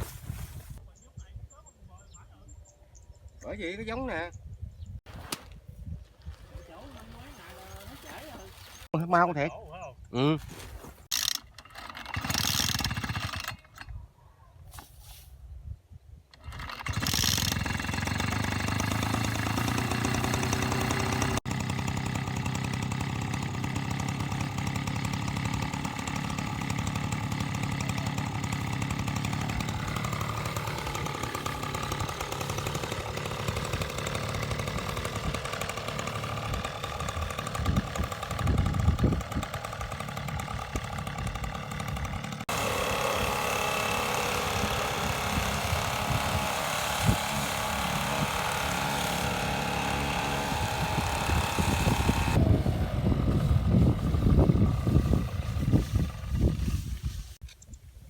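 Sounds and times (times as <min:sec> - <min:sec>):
small engine running: 0:06.6 - 0:08.9, 0:11.0 - 0:13.9, 0:16.4 - 0:57.4.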